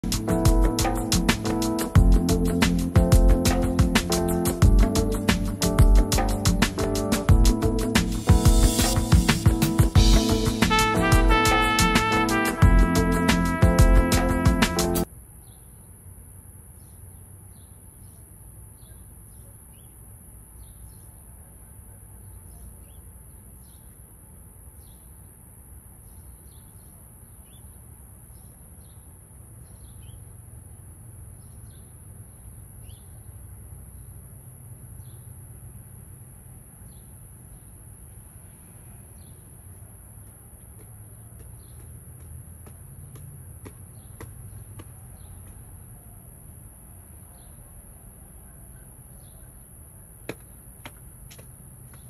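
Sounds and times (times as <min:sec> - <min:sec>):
steady high hiss: 0:00.0 - 0:15.1.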